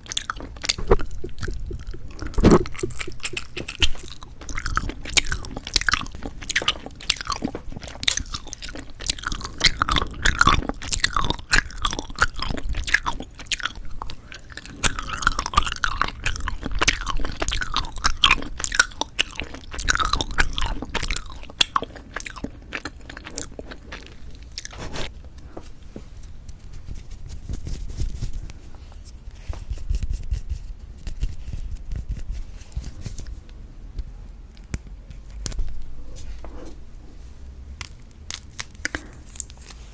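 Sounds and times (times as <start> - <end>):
chewing jelly candy: 0.0 - 25.1, 37.8 - 39.9.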